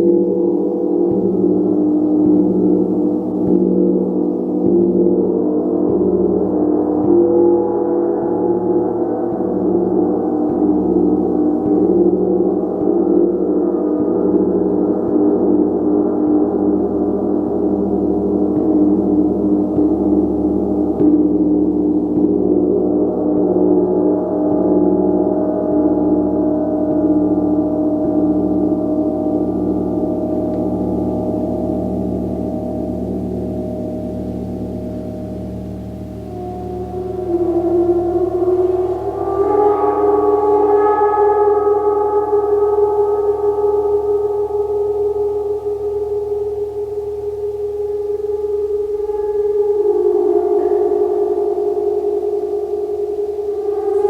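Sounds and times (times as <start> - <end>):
gong played: 23.1 - 54.0.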